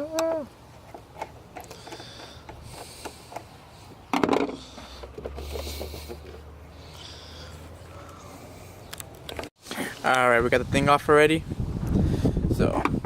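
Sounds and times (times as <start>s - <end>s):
hand tools clicking and scraping: 0.1s - 10.0s.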